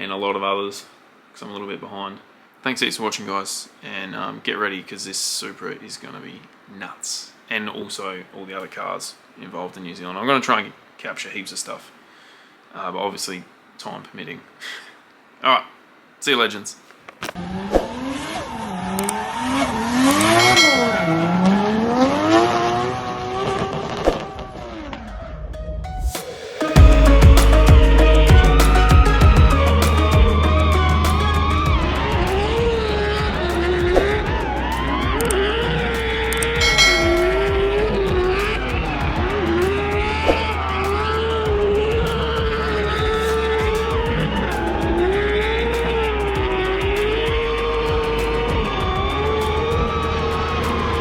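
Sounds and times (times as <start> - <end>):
car engine revving: 17.4 - 25.0, 26.8 - 51.0
tyre squeal: 17.8 - 22.0
loud music: 25.6 - 51.0.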